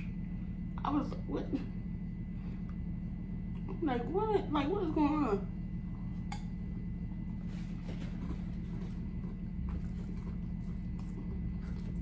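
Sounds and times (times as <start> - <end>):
low hum: 0.0 - 12.0
chewing: 7.8 - 12.0.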